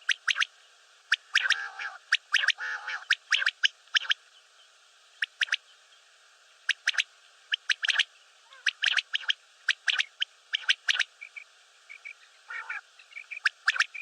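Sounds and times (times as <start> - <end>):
quail calling: 1.1 - 4.2, 6.7 - 14.0.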